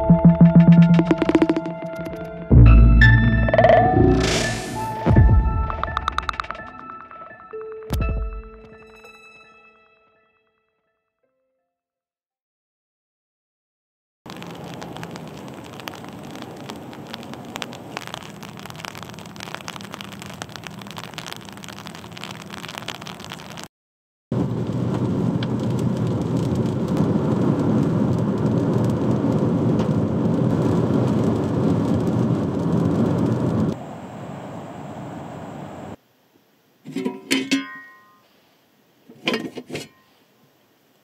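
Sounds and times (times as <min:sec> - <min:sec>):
rain pattering: 0:00.6 - 0:02.4, 0:14.3 - 0:23.7, 0:24.3 - 0:33.9
car driving on a wet road: 0:14.3 - 0:23.7, 0:24.4 - 0:36.0.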